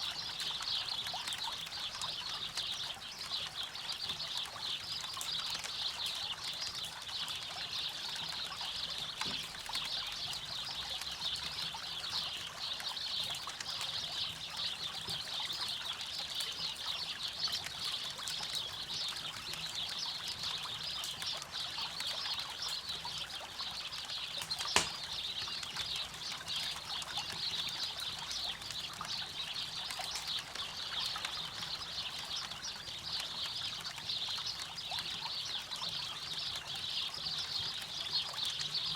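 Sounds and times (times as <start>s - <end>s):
campfire crackling: 18.8s - 30.5s.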